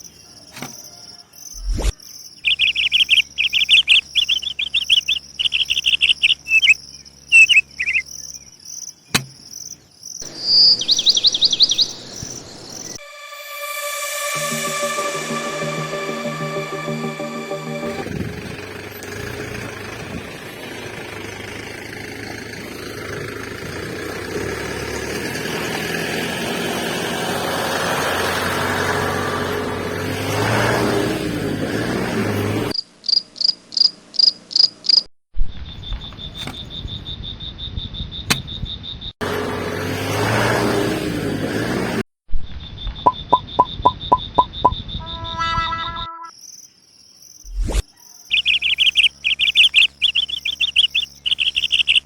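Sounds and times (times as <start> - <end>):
crickets chirping: 0.0 - 13.0, 32.8 - 35.1, 35.8 - 39.1, 42.6 - 52.0.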